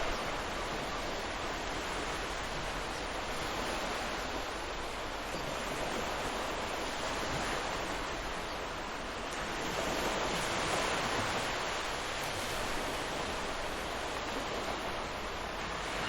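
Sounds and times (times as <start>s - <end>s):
ocean waves washing: 0.0s - 16.0s.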